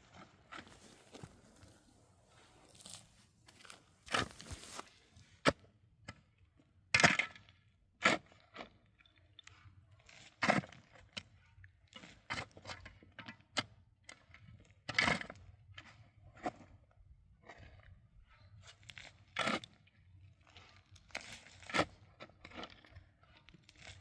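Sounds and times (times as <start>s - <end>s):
digging tool striking snow and rock: 2.6s - 5.6s.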